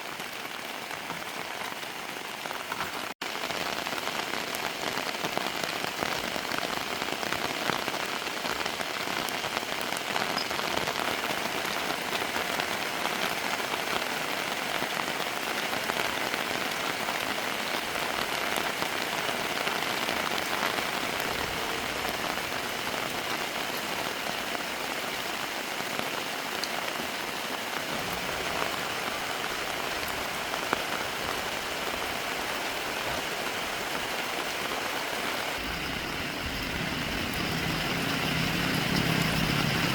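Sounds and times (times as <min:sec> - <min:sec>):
steady rain: 0:00.0 - 0:39.9
low rumble: 0:35.6 - 0:39.9.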